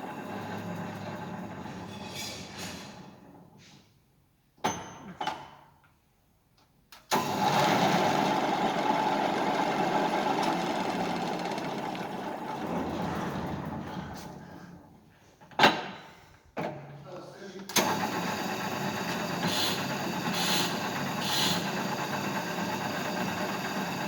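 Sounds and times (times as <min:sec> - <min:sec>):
drill press motor whirring: 0:07.1 - 0:12.6, 0:17.8 - 0:24.0.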